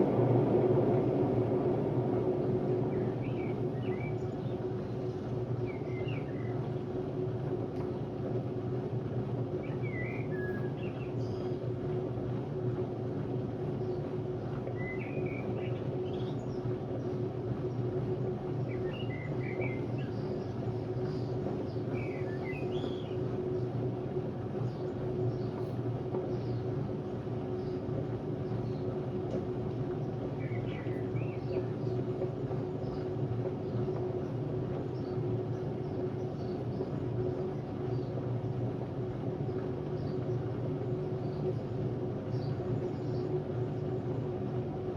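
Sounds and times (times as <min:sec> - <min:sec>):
washing machine rumbling and whining: 0:00.0 - 0:44.9
birds chirping: 0:30.0 - 0:38.6.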